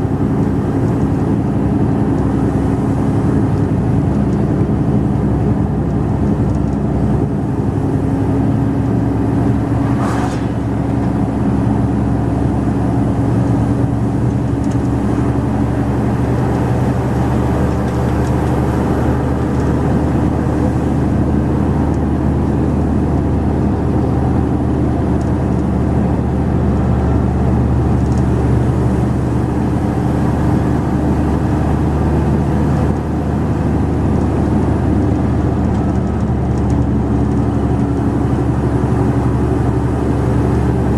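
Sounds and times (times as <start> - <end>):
truck diesel engine running: 0.0 - 40.9
brief hiss: 9.8 - 10.7.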